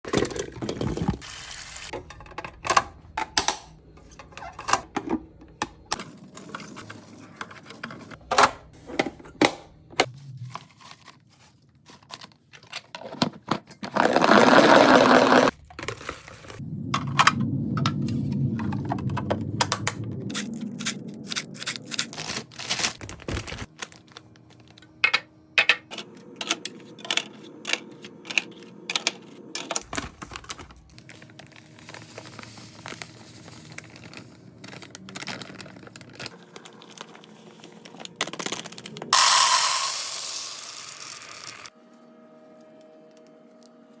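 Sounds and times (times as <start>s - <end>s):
packages clicking and knocking: 1.9s - 10.1s, 10.7s - 16.6s, 20.4s - 39.2s.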